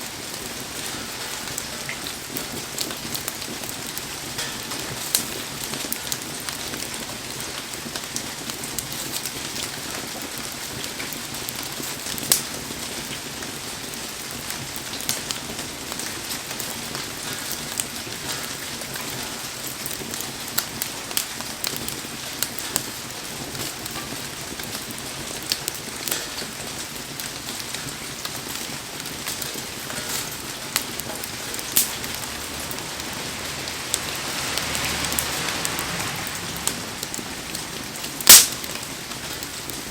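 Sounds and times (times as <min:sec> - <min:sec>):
heavy rain: 0:00.0 - 0:39.9
sharp pops and ticks: 0:27.2 - 0:33.0, 0:36.6 - 0:39.9.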